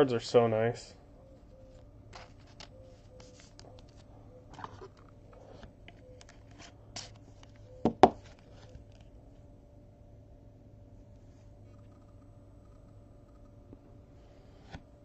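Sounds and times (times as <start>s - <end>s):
card holders clicking and rustling: 2.1s - 9.0s.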